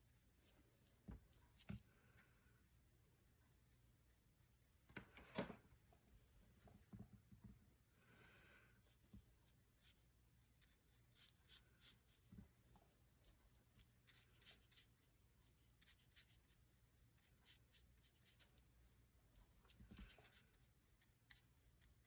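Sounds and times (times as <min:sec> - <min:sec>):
brush strokes on paper: 0:07.8 - 0:22.0.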